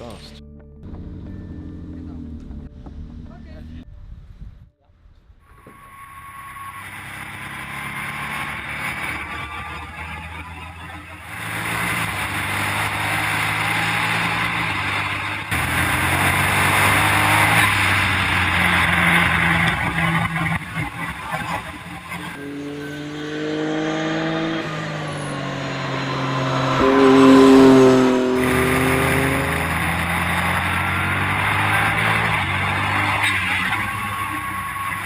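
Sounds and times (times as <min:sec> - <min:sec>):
wind and road noise: 0:00.0 - 0:35.0
racing car engine at high revs: 0:05.6 - 0:35.0.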